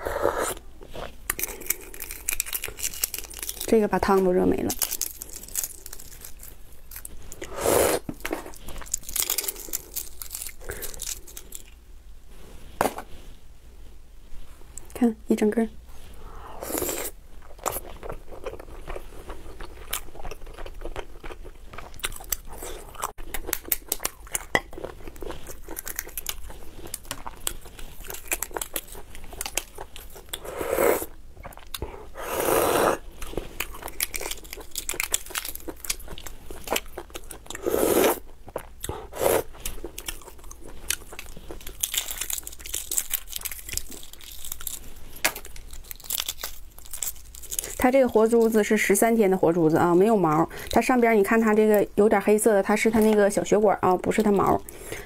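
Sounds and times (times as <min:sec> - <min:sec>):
person chewing egg: 0:00.1 - 0:03.7, 0:04.8 - 0:11.8, 0:16.5 - 0:47.8
eggshell crackling while peeled: 0:01.1 - 0:11.8, 0:16.7 - 0:49.1.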